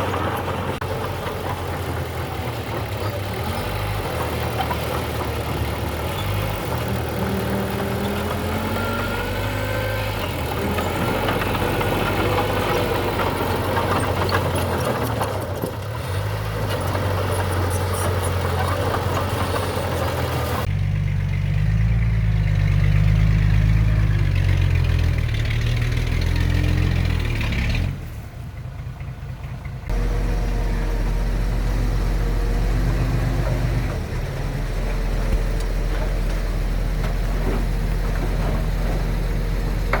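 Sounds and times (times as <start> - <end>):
heavy machinery diesel engines: 0.0 - 40.0.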